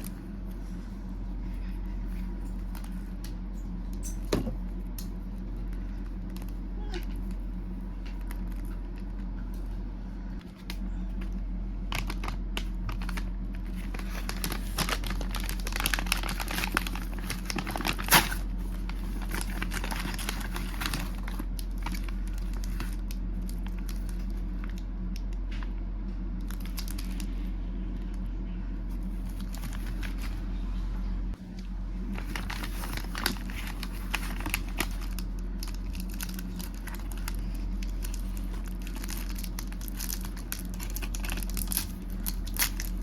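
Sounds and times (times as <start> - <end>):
low electrical hum: 0.0 - 43.0
snack packaging crinkling: 11.9 - 25.4, 26.3 - 27.4, 29.0 - 30.4, 32.0 - 43.0.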